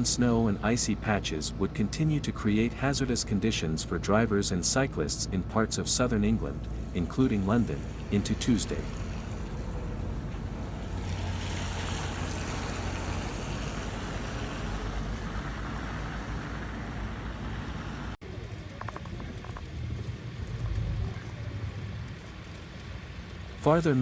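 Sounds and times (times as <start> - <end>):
road traffic rumble and hiss: 0.0 - 24.0
low rumble: 6.0 - 23.9.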